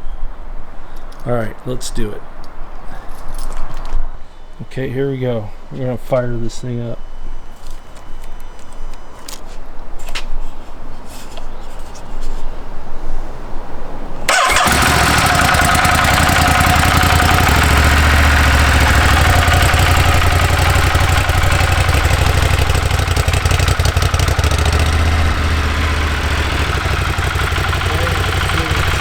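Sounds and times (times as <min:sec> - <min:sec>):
motorcycle engine starting and idling: 0:14.3 - 0:29.0.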